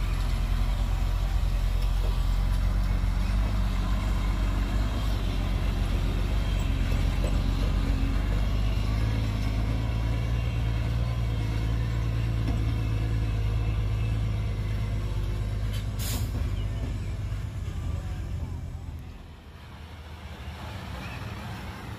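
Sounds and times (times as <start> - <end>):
heavy diesel engine droning: 0.0 - 21.9
short hiss: 15.7 - 16.4.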